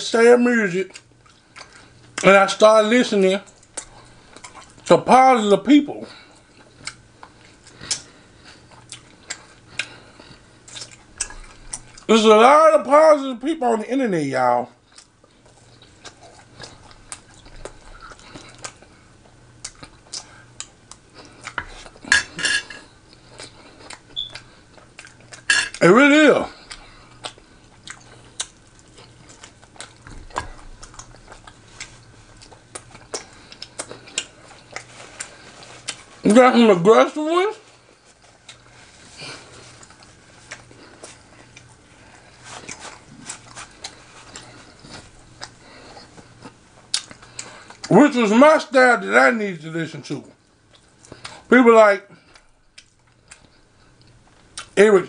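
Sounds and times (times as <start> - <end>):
close chewing with mouth clicks: 0.9 - 2.3, 3.4 - 4.9, 6.1 - 12.1, 14.8 - 22.1, 22.8 - 25.8, 26.5 - 36.3, 37.6 - 47.9, 50.4 - 51.5, 52.2 - 54.8.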